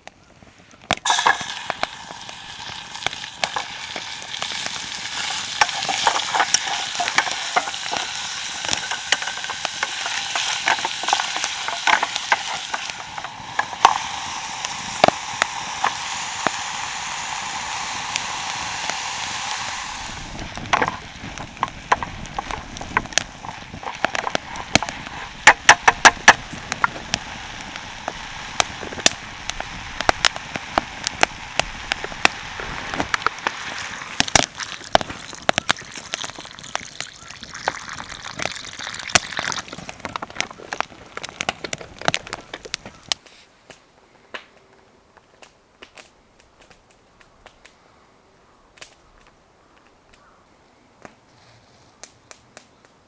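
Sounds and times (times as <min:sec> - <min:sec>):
sharp crackles and pops: 0:00.0 - 0:50.4, 0:51.0 - 0:53.0
food sizzling in a hot pan: 0:01.0 - 0:43.2.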